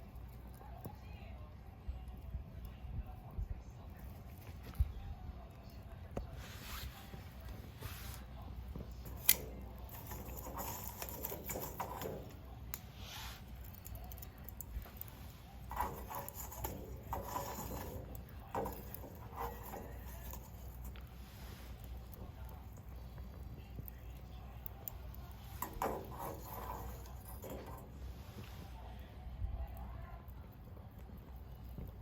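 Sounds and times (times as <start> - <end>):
wood fire crackling: 0.0 - 32.0
soft clicks and rustles: 3.4 - 28.9
sharp snap of fire: 6.6 - 27.1.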